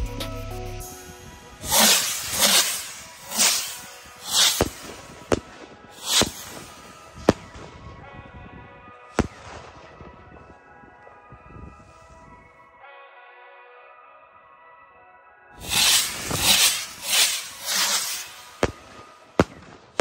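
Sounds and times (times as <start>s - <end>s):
faint music: 0.0s - 20.0s
fireworks rushing bursts: 0.9s - 8.0s, 9.2s - 10.3s, 15.6s - 20.0s
firework bangs: 1.5s - 8.2s, 9.2s - 10.4s, 15.6s - 20.0s.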